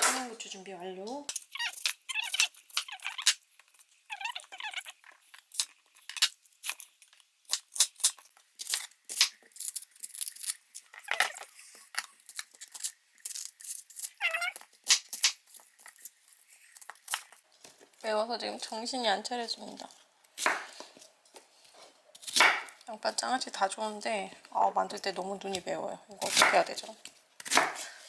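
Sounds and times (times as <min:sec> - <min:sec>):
knife cutting onions on a board: 0:20.4 - 0:21.0, 0:21.6 - 0:22.8, 0:26.2 - 0:28.0.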